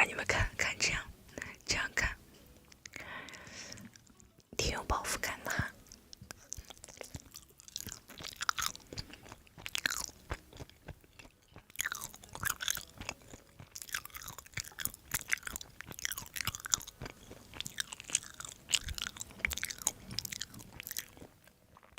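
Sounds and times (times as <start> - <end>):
person chewing food: 2.4 - 4.5, 5.6 - 21.9.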